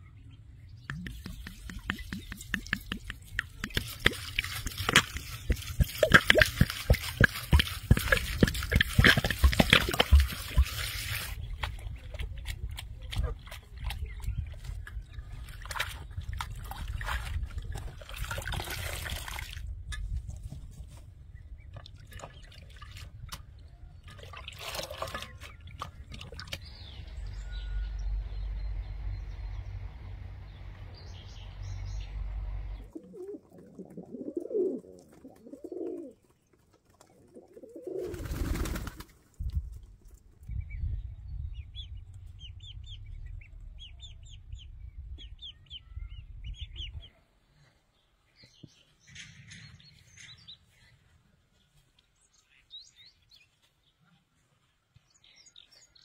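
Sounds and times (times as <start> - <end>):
birds calling: 0.0 - 12.4
low rumble: 40.4 - 46.8.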